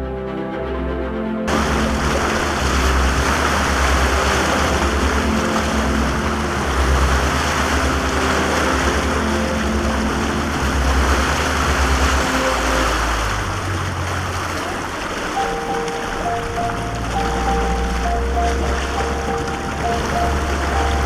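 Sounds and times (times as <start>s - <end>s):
boat engine running: 1.5s - 21.0s
rushing water: 1.5s - 21.0s
wind: 1.5s - 21.0s.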